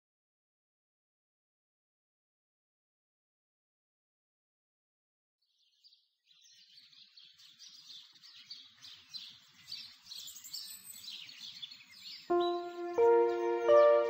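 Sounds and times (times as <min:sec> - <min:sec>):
small birds chirping and twittering: 0:05.4 - 0:14.0.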